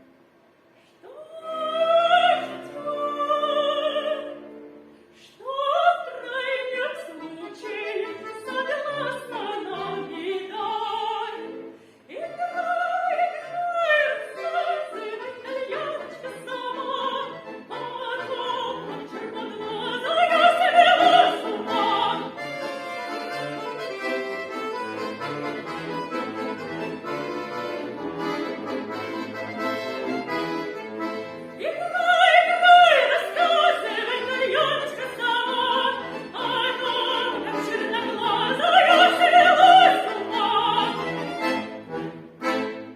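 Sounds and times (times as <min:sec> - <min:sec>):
woman singing: 0:01.0 - 0:04.4, 0:05.2 - 0:22.4, 0:31.6 - 0:41.4
instrumental accompaniment: 0:13.4 - 0:42.9.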